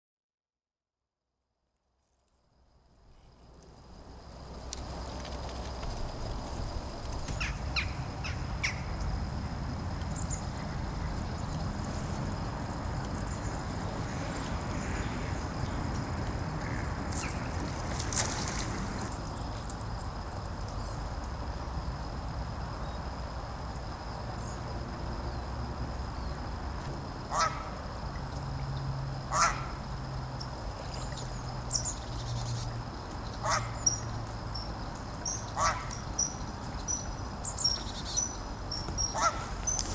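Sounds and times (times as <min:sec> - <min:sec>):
small birds calling: 0:07.2 - 0:09.2, 0:27.3 - 0:27.7, 0:29.3 - 0:29.8, 0:30.9 - 0:39.9
ducks quacking: 0:29.3 - 0:29.7, 0:33.4 - 0:33.8, 0:35.6 - 0:36.0, 0:39.2 - 0:39.6.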